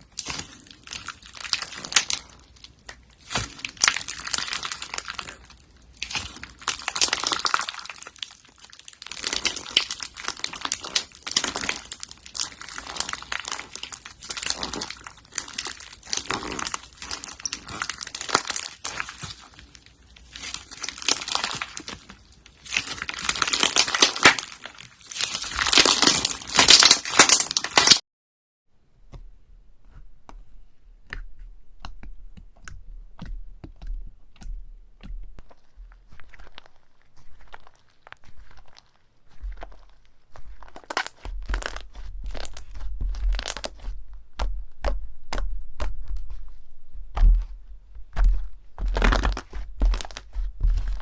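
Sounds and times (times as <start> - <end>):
slime squeezed by hand: 0.0 - 28.0.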